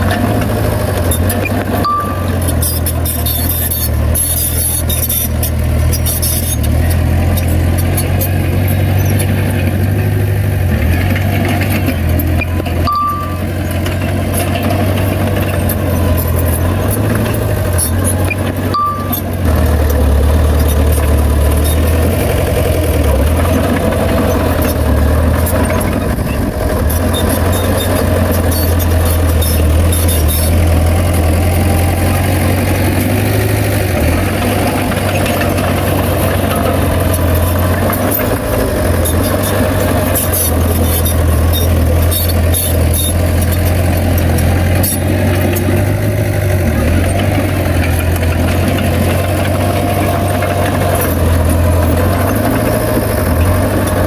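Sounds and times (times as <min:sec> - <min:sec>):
heavy diesel engine running: 0:00.0 - 0:54.0
short high beeps: 0:01.7 - 0:05.2, 0:12.4 - 0:13.6, 0:18.7 - 0:19.4.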